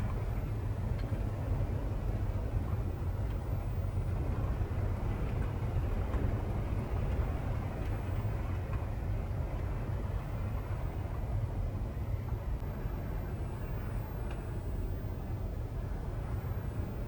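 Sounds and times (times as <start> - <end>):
strong wind: 0.0 - 17.0
faint ticks: 13.6 - 14.9.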